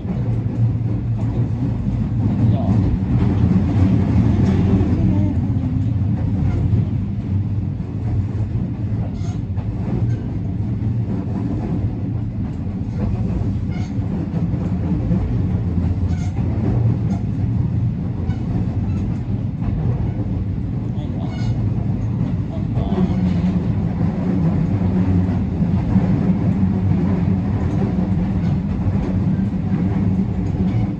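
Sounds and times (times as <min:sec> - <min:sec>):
electric train running: 0:00.0 - 0:20.6.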